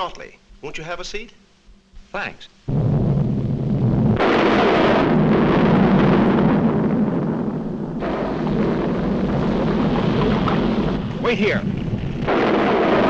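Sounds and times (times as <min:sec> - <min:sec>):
cartoon volcano eruption roar: 0:02.7 - 0:13.0.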